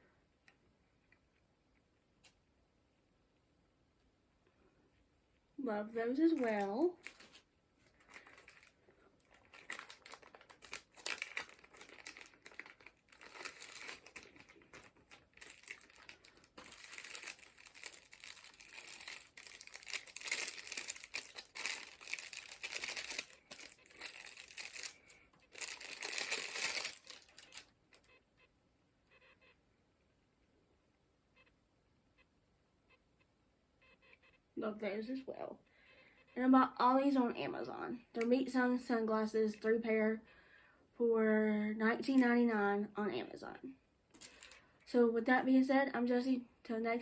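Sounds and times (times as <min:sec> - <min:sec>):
plastic packaging crinkling: 0:06.1 - 0:28.1, 0:44.2 - 0:44.7.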